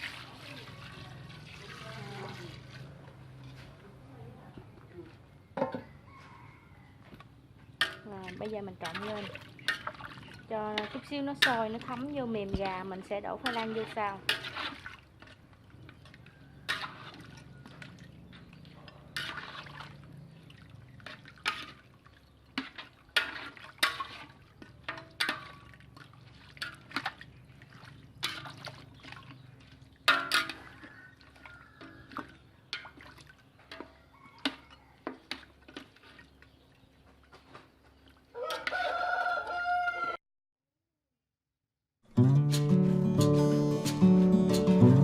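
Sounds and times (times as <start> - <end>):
rooster crowing: 5.6 - 7.2, 16.2 - 17.8, 30.4 - 32.2, 33.8 - 35.1, 38.3 - 40.2
spoon scraping a pot: 8.8 - 15.4, 16.0 - 20.1, 22.6 - 25.7, 28.2 - 29.1.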